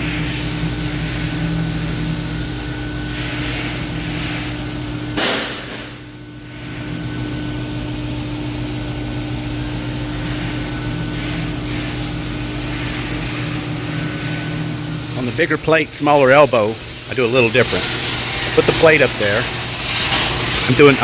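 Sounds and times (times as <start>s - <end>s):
electrical hum of machinery: 0.0s - 21.0s
sharp knock: 5.2s - 6.0s.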